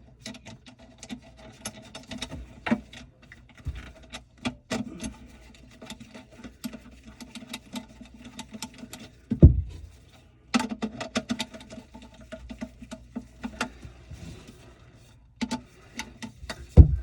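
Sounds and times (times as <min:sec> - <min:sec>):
heavy low thump: 0:09.4 - 0:09.9, 0:16.8 - 0:17.0.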